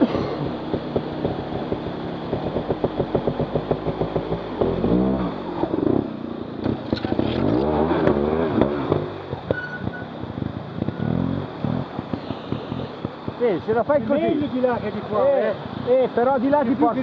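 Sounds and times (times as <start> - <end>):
sharp knocks and clatter: 0.0 - 5.0, 6.6 - 10.2, 11.8 - 13.9
motorcycle engine revving: 0.0 - 15.8.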